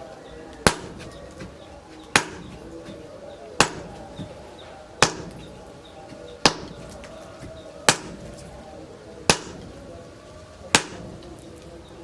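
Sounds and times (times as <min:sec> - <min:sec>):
hammer striking steel: 0:00.6 - 0:01.2, 0:02.2 - 0:03.0, 0:03.6 - 0:04.4, 0:05.0 - 0:05.7, 0:06.4 - 0:07.2, 0:07.9 - 0:08.7, 0:09.3 - 0:10.1, 0:10.7 - 0:11.4.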